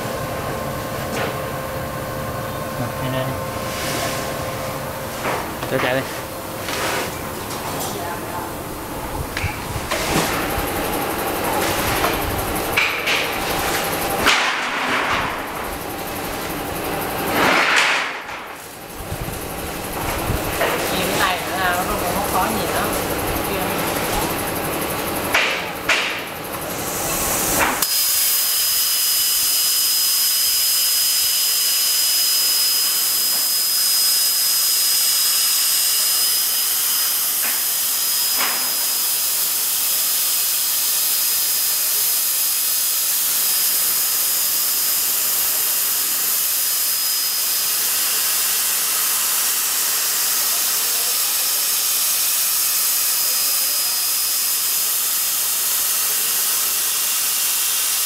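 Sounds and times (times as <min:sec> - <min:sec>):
plasma cutter arc hissing: 0:26.7 - 0:58.0.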